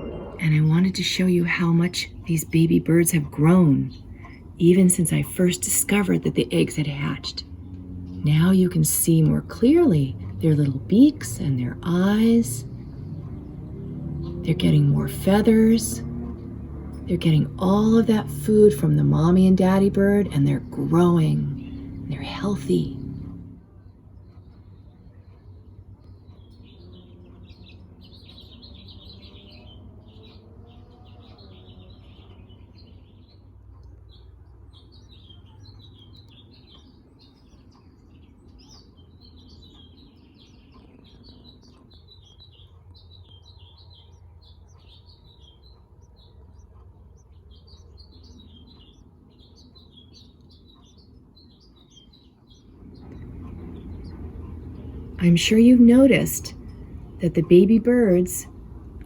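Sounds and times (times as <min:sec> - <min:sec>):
loud low noise: 0:00.0 - 0:24.3, 0:52.6 - 0:59.0
faint low hum: 0:00.0 - 0:59.0
small birds chirping: 0:00.0 - 0:59.0.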